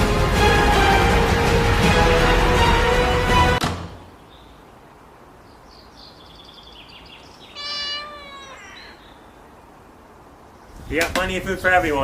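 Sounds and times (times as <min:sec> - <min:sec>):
small birds chirping: 0:04.0 - 0:11.0
cat meowing: 0:07.5 - 0:09.1.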